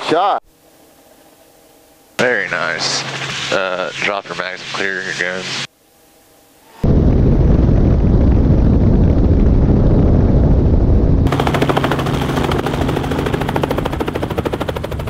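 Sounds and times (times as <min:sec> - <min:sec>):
helicopter engine hum: 0:00.5 - 0:15.0
helicopter rotor beating: 0:00.9 - 0:05.7, 0:06.8 - 0:15.0
wind buffeting: 0:06.8 - 0:15.0.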